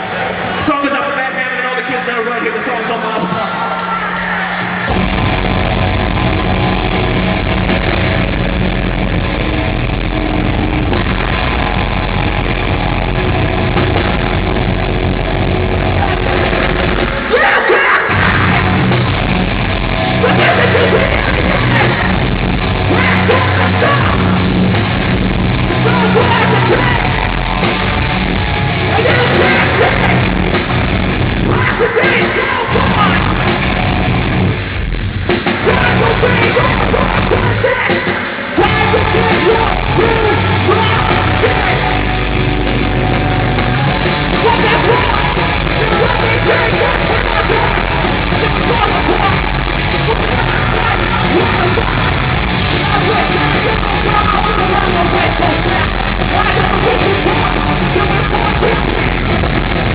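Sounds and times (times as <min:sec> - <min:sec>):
heavy rock band playing live: 0:02.5 - 0:59.9
yelled vocals: 0:03.0 - 0:59.9.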